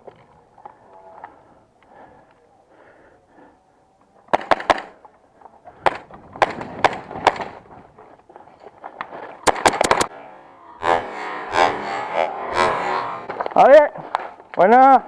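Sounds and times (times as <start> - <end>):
airsoft gun shots: 4.3 - 4.9, 9.4 - 10.1.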